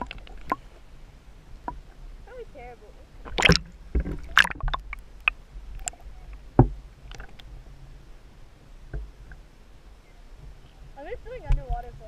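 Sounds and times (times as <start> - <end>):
underwater clicks and knocks: 0.0 - 0.7, 3.2 - 7.5, 8.9 - 9.4, 11.4 - 11.9
low steady underwater rumble: 0.0 - 12.0
heavy underwater thump: 3.3 - 5.4, 6.5 - 6.8.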